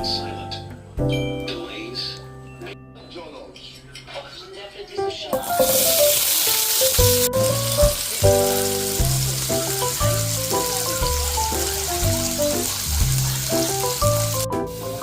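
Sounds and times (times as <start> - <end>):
background music: 0.0 - 4.0, 4.8 - 15.0
food sizzling in hot oil: 5.4 - 15.0.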